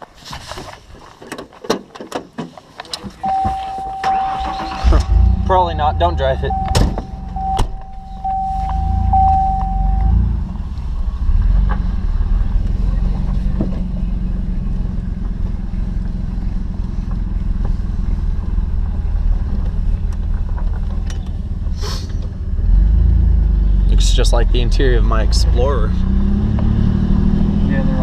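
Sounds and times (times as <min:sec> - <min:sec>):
pickup engine running: 0:03.2 - 0:22.6
brief hiss: 0:21.8 - 0:22.2.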